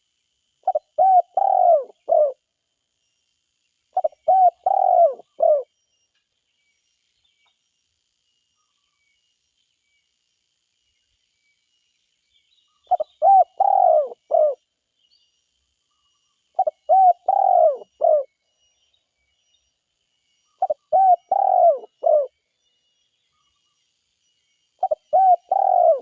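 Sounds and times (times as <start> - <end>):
dove cooing: 0.6 - 2.4, 3.9 - 5.7, 12.9 - 14.6, 16.6 - 18.3, 20.6 - 22.3, 24.8 - 26.0.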